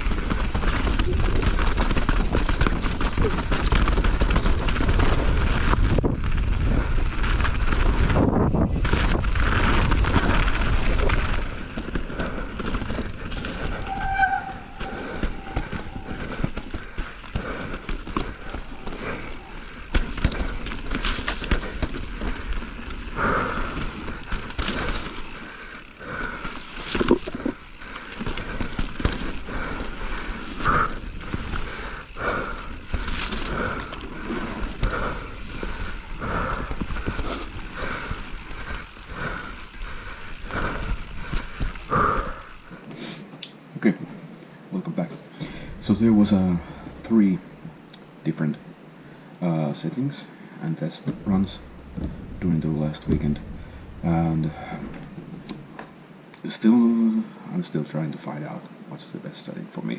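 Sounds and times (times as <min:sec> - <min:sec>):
wind rushing on microphone: 0:00.0 - 0:11.8
bike clicks and rattles: 0:00.0 - 0:42.9, 0:51.1 - 0:56.0
bike tyre noise: 0:00.0 - 0:43.3, 0:45.4 - 0:49.3, 0:51.0 - 0:56.2.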